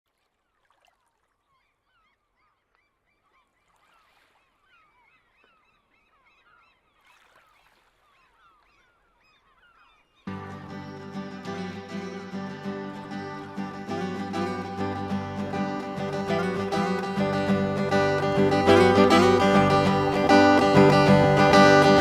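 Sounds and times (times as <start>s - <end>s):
flock of gulls calling: 8.0s - 22.0s.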